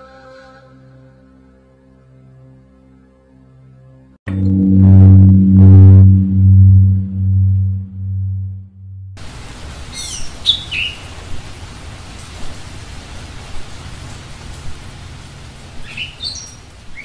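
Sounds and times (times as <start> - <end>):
low musical tone: 4.3 - 9.2
birds chirping: 9.8 - 11.3, 15.2 - 17.0.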